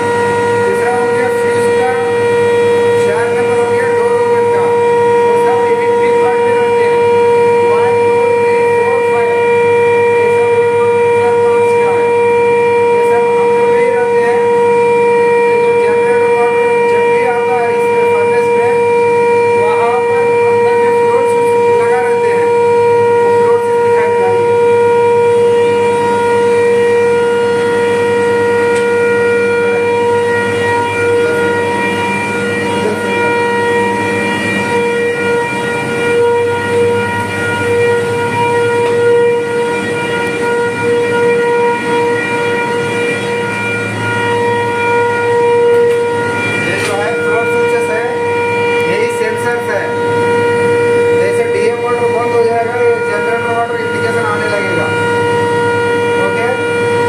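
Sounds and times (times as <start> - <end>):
electrical whine from power panel: 0.0 - 57.0.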